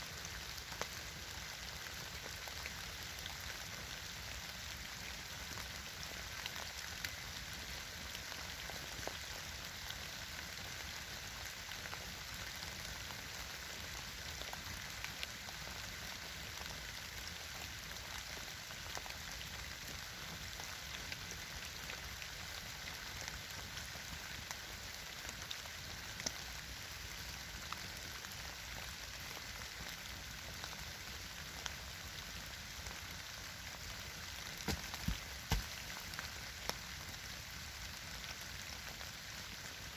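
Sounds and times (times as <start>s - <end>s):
campfire crackling: 0.0s - 39.9s
fire popping: 33.3s - 36.9s.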